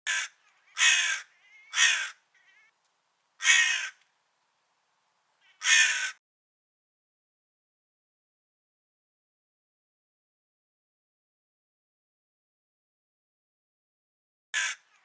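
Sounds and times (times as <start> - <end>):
crow cawing: 0.1 - 2.8, 3.4 - 4.0, 5.4 - 6.2, 14.6 - 15.0.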